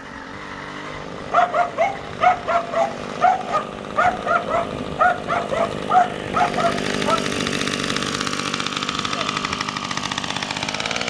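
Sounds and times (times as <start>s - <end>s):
small motorbike engine running: 0.0s - 11.0s
dog barking: 1.3s - 7.3s.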